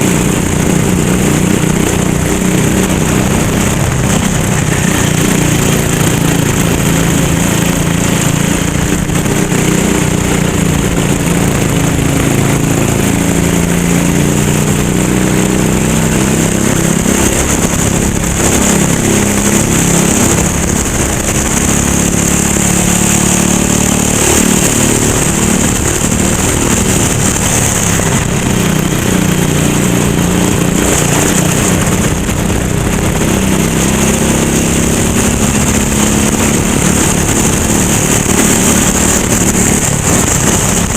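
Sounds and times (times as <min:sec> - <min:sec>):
go-kart engines racing: 0:00.0 - 0:40.9.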